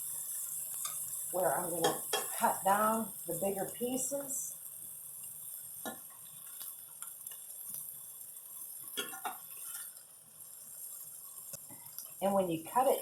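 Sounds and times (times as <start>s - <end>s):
kitchen fan hissing: 0.0s - 10.0s
utensils clinking on plate: 9.0s - 9.9s.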